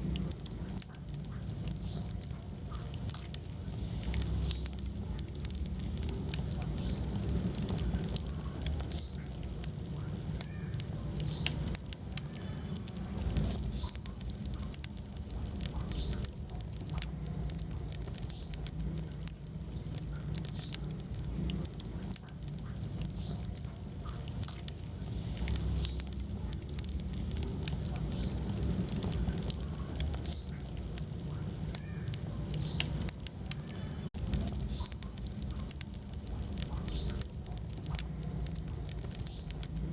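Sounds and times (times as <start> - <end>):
logs crackling and popping: 0.0 - 39.9
low rumble of flames: 0.0 - 39.9.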